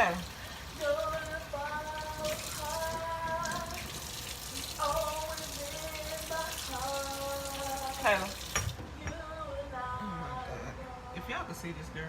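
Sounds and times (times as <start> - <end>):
person singing long notes: 0.7 - 4.0, 4.6 - 8.4, 9.1 - 11.1
tap running into a sink: 1.9 - 8.8.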